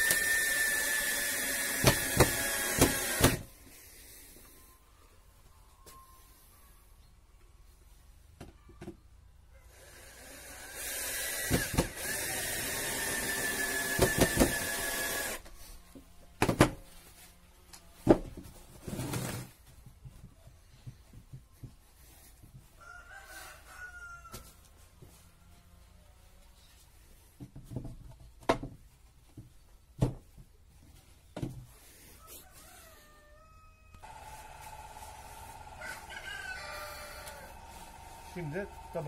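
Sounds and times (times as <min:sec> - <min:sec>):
power tool whining: 0:00.0 - 0:03.5, 0:09.7 - 0:15.5, 0:34.0 - 0:39.0
rooster crowing faintly: 0:22.7 - 0:25.9, 0:32.1 - 0:39.0.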